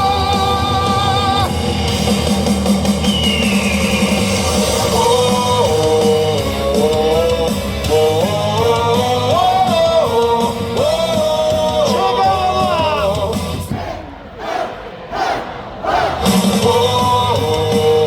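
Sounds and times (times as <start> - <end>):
person singing: 0.0 - 1.6, 4.8 - 13.6, 16.3 - 18.0
rock song over loudspeakers: 0.0 - 14.1, 16.1 - 18.0.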